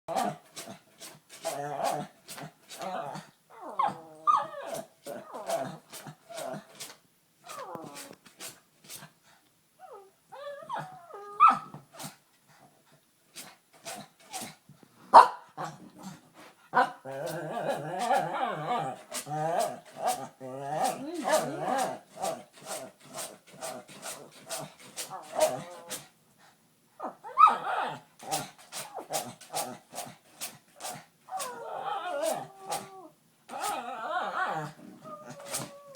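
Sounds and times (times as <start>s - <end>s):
dog whining and yodeling: 3.5s - 5.6s, 9.8s - 11.7s, 27.2s - 28.0s, 31.3s - 35.9s.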